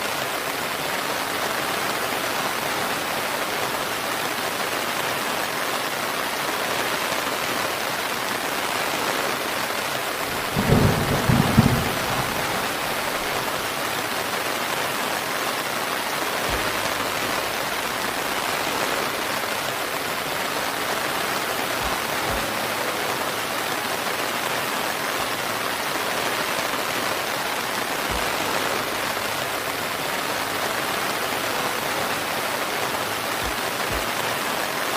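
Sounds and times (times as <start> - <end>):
steady rain falling: 0.0 - 34.9
low thunder rumble: 10.3 - 13.6.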